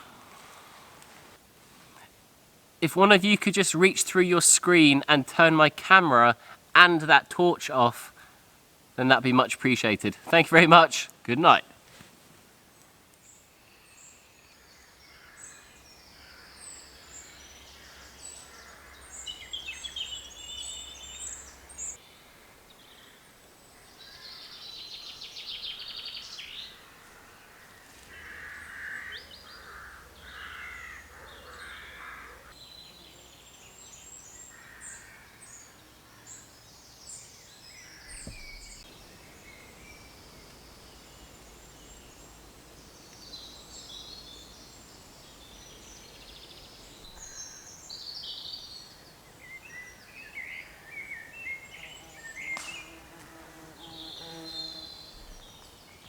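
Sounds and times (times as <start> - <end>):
faint steady background hiss: 0.0 - 28.2, 35.4 - 56.0
woodland birds chirping and trilling: 12.6 - 56.0.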